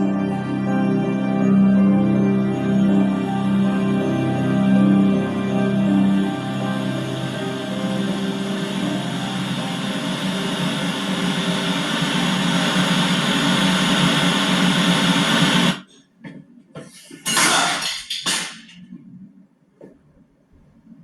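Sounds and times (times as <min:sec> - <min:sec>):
loud droning noise with hiss: 0:00.0 - 0:15.9.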